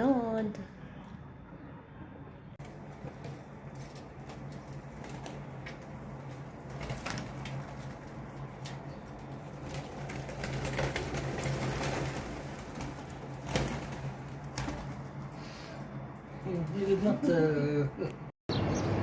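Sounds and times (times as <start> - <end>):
birds chirping: 18.5 - 19.0.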